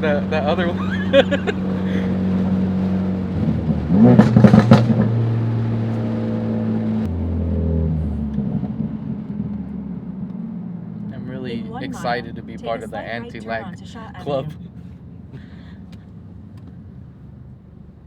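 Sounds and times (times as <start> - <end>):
car engine running: 0.0 - 18.0
exhaust pops and crackles: 1.4 - 6.2.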